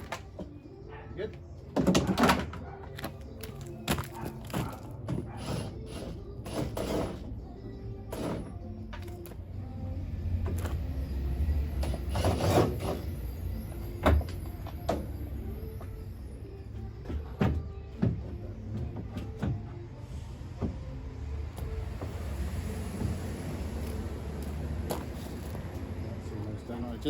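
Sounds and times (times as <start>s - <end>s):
tools being handled and set down: 1.7s - 7.2s.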